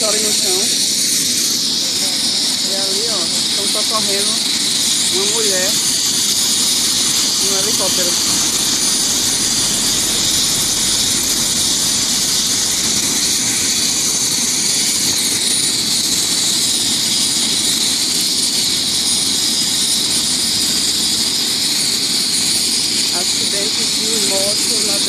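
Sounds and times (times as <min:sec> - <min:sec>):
helicopter running: 0:00.0 - 0:25.0.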